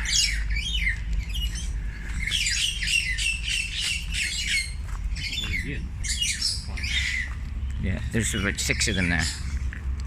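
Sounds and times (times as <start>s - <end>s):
flock of birds calling: 0.0s - 9.9s.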